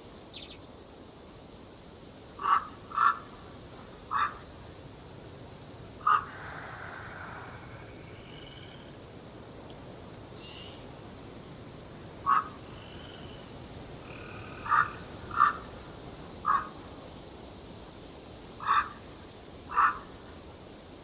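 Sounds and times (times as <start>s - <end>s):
forest birds calling: 0.0s - 0.8s, 2.4s - 4.5s, 6.0s - 9.2s, 10.2s - 16.9s, 18.6s - 20.2s
steady background hiss: 0.0s - 21.0s.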